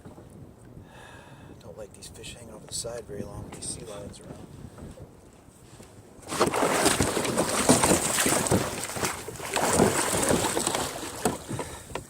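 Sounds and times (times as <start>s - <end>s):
fish thrashing and splashing water: 6.2s - 11.8s.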